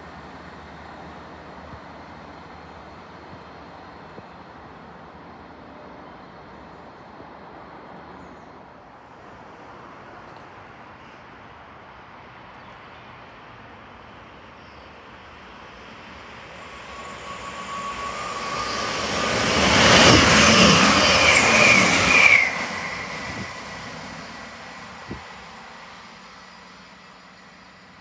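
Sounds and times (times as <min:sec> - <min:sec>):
diesel train passing: 0:00.0 - 0:28.0
thin whining tone: 0:15.8 - 0:28.0.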